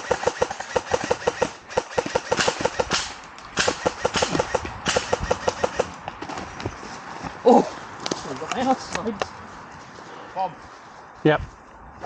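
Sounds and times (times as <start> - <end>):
rapid airsoft gunfire: 0.0 - 6.0
scuffing rustles: 6.0 - 12.0.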